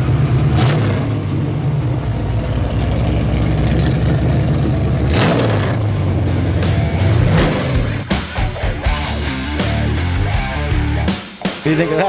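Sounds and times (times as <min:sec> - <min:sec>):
car engine rumbling: 0:00.0 - 0:11.1.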